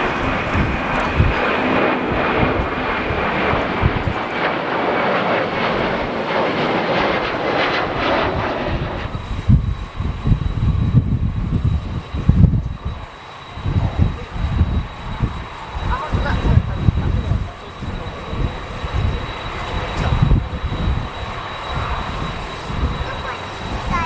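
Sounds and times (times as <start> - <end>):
airliner engines passing: 0.0 - 24.0
wind buffeting microphone: 0.0 - 24.0.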